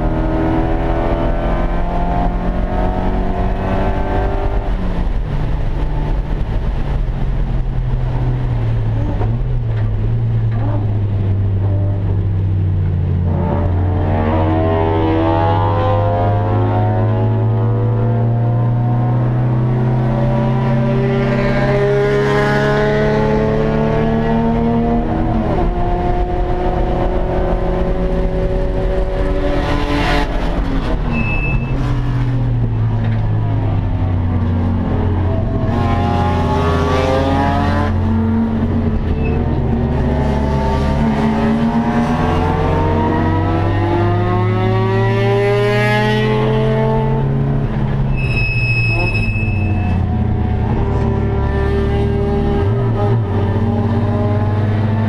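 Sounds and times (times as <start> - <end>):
race car engine revving: 0.0 - 7.0, 8.4 - 48.2, 48.8 - 55.0
electronic beep: 31.1 - 32.0, 48.2 - 50.0.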